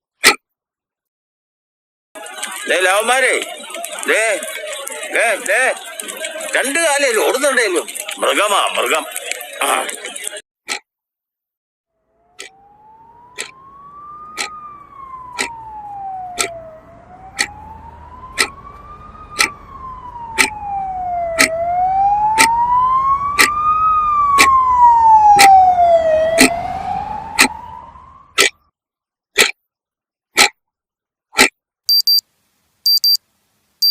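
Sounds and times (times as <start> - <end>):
emergency vehicle siren wailing: 2.2 - 10.4, 12.0 - 28.4
sharp ticks: 13.4 - 13.6, 14.4 - 14.6, 15.4 - 15.6, 16.4 - 16.6, 17.4 - 17.6, 18.4 - 18.6, 19.4 - 19.6, 20.4 - 20.6, 21.4 - 21.6, 22.4 - 22.6, 23.4 - 23.6.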